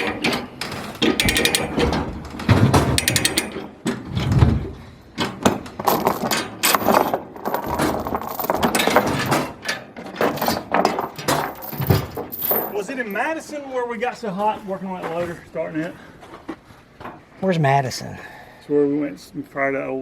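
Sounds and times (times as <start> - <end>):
metal knocks and clanks: 0.0 - 13.2
ratchet wrench clicking: 1.2 - 1.7, 3.0 - 3.5.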